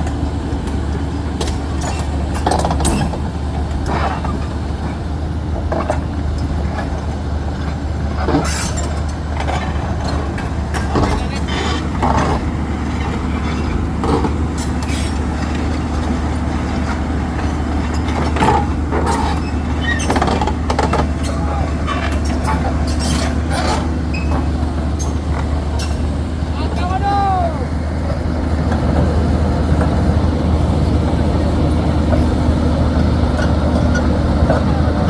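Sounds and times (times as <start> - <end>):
diesel machinery droning: 0.0 - 35.0
metallic clanks and knocks: 17.4 - 26.1.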